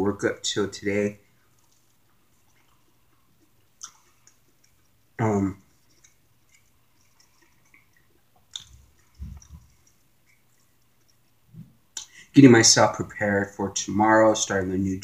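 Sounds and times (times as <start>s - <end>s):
chewing and lip-smacking: 1.2s - 12.3s.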